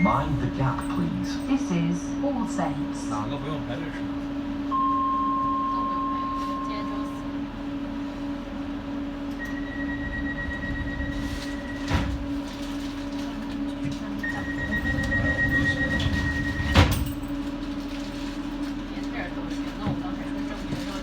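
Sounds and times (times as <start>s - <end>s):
train electrical hum: 0.0s - 21.0s
high door warning tone: 4.7s - 7.4s, 9.3s - 12.5s, 14.2s - 17.3s
sliding doors thumping shut: 10.8s - 12.5s, 14.4s - 17.2s.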